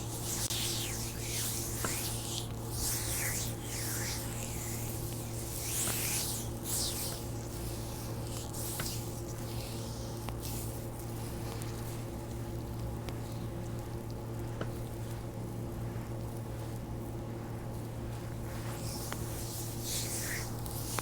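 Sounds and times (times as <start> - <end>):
hands swishing over skin: 0.0 - 11.1, 18.3 - 21.0
steady low hum: 0.0 - 21.0.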